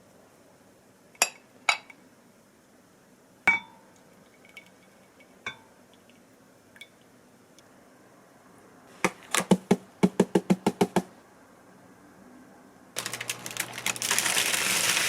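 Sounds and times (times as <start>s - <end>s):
dishes clinking: 3.5s - 3.8s.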